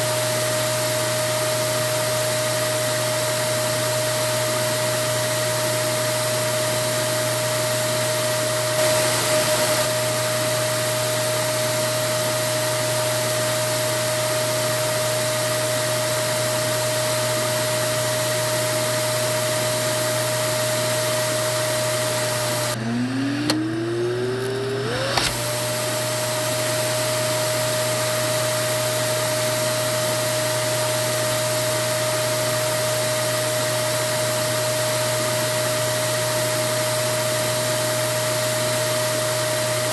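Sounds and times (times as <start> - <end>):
vacuum cleaner motor whining: 0.0 - 39.9.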